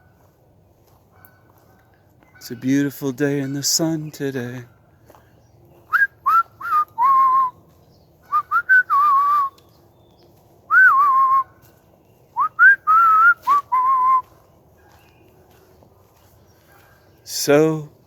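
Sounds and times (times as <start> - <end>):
man whistling a tune: 5.9 - 7.6, 8.3 - 9.6, 10.7 - 11.5, 12.4 - 14.3.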